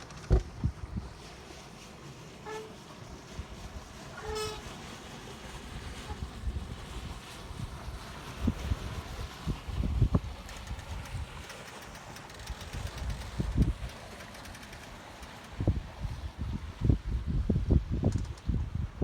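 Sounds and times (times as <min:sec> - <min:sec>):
wind thumps on microphone: 0:00.1 - 0:01.0
short horn toots: 0:04.2 - 0:04.7.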